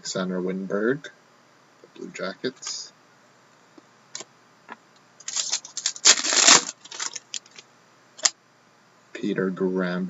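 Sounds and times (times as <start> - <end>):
cards rustling and scraping: 5.2 - 7.6.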